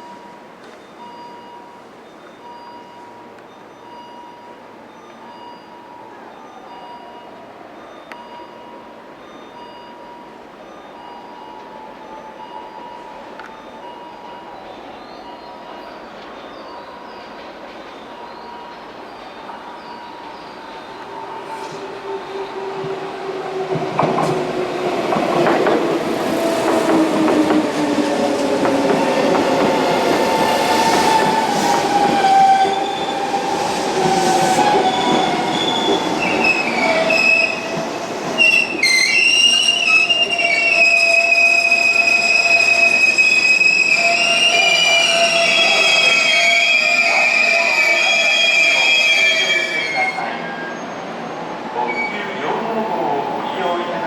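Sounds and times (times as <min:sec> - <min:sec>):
electric train passing: 0:00.0 - 0:54.0
high-pitched wheel squeal: 0:29.8 - 0:52.4.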